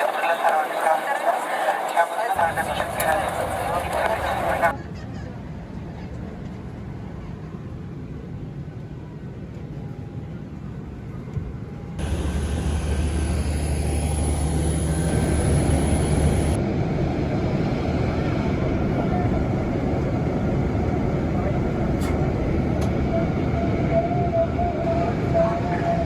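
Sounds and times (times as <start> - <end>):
jet airliner roar: 0.0 - 9.6, 12.0 - 26.0
thin high whine: 12.0 - 16.6.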